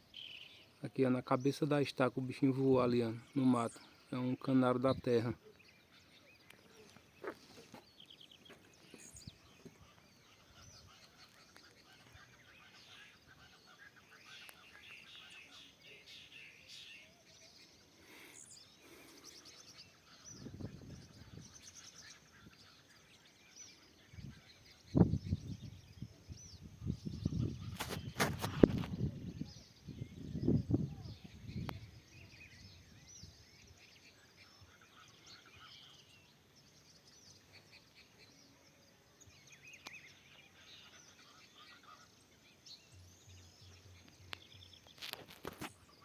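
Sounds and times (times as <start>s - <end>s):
small birds chirping: 0.0s - 46.0s.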